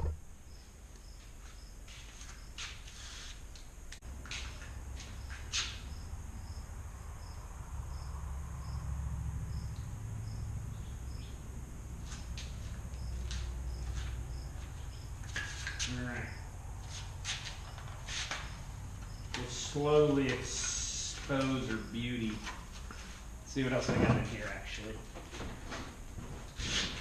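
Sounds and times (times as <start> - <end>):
low hum: 0.0 - 0.5
cricket chirping: 0.0 - 2.7, 4.5 - 23.4.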